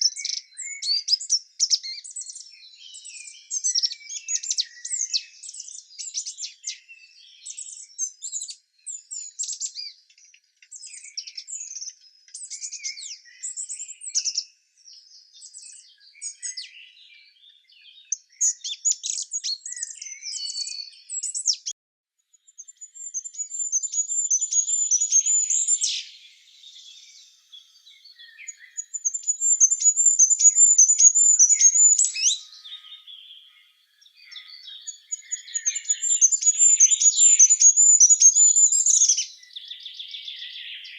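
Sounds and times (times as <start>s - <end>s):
songbirds singing and chirping: 0.0s - 40.9s
high rapid bird trill: 28.8s - 32.4s.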